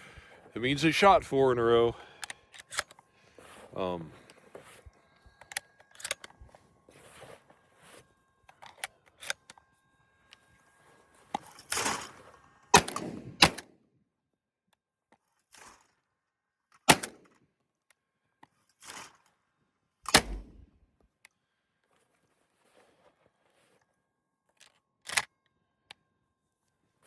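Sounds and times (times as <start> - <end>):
shotgun metallic clicks: 2.2 - 3.0, 5.4 - 6.4, 16.8 - 17.4, 20.1 - 20.6.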